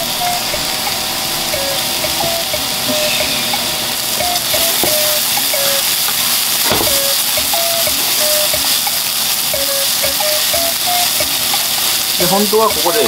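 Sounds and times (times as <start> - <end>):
food sizzling in a frying pan: 0.0 - 13.0
sharp knocks: 6.7 - 7.0.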